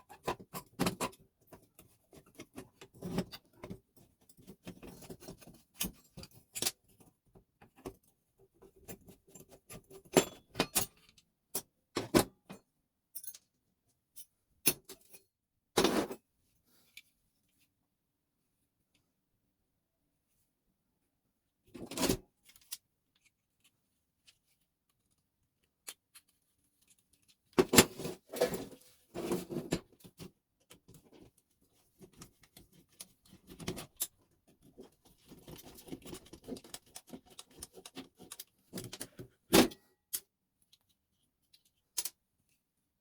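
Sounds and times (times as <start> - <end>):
small clicks and rattles: 32.0 - 39.3.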